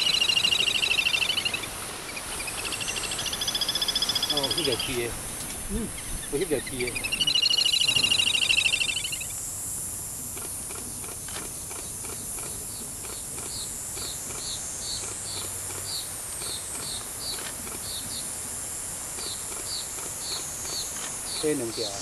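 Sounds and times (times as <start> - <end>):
bird rapid trill: 0.0 - 9.4
insect hiss: 0.0 - 22.0
bird short high chirps: 6.0 - 9.3.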